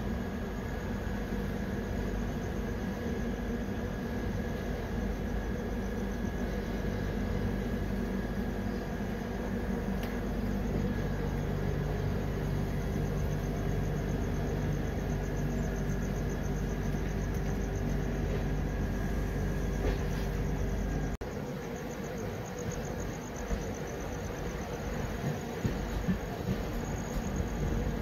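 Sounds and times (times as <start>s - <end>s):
train wheels rumbling on track: 7.3s - 21.2s, 22.0s - 28.0s.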